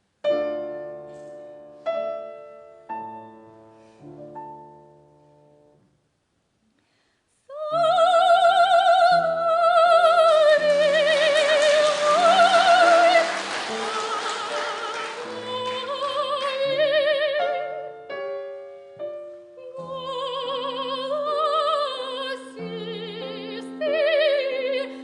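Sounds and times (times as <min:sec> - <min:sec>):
piano chords: 0:08.8 - 0:25.0.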